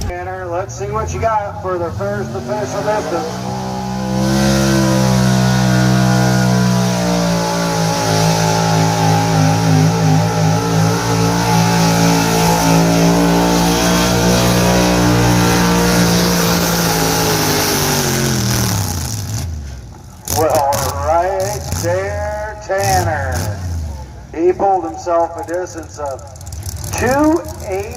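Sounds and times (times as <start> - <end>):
truck engine at high revs: 0.0 - 27.9.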